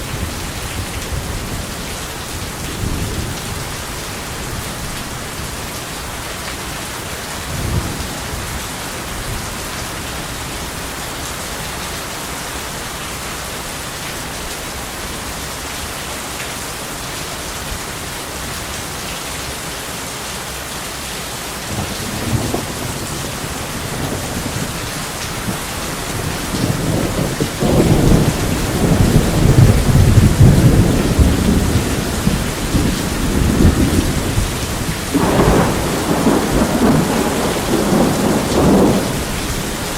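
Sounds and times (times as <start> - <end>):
heavy rain: 0.0 - 39.9
rolling thunder: 21.7 - 39.9.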